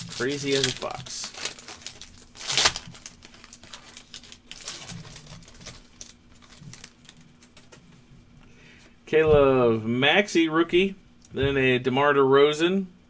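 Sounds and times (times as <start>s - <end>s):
wrapper ripping: 0.0s - 7.8s
wrapper crinkling: 0.0s - 7.9s
cards being handled: 0.0s - 8.0s.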